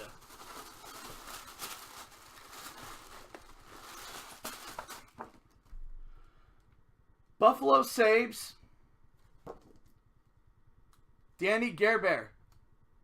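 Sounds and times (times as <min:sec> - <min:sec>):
trading cards and packaging rustling: 0:00.0 - 0:05.7.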